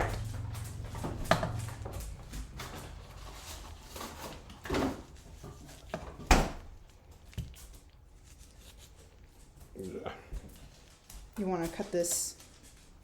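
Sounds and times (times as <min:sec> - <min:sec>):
kitchen knocks and clatters: 0:00.0 - 0:06.8.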